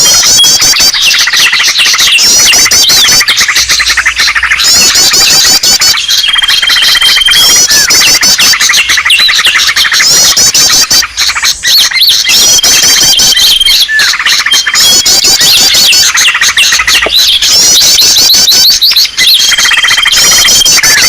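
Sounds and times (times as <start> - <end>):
flock of small songbirds chirping: 0.0 - 21.0
held whistle: 0.0 - 21.0.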